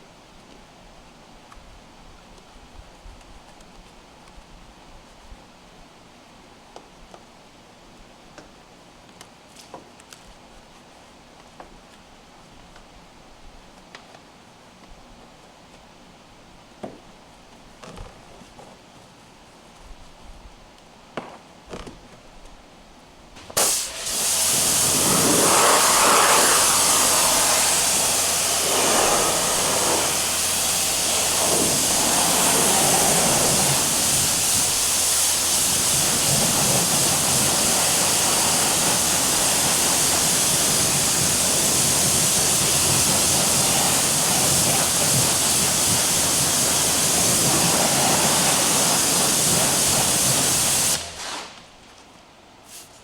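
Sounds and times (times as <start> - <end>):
pressure washer motor hum: 23.4 - 51.6
water spray hissing: 23.4 - 51.6.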